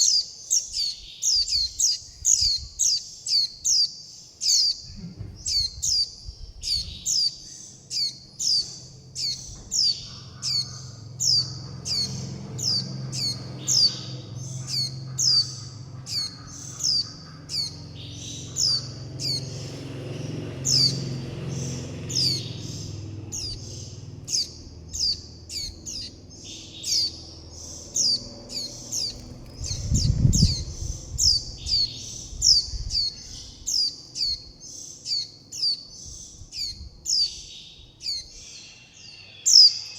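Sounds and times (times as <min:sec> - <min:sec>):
young birds calling: 0:00.0 - 0:39.9
dull low thump: 0:05.0 - 0:05.8
low rumble: 0:18.6 - 0:34.4.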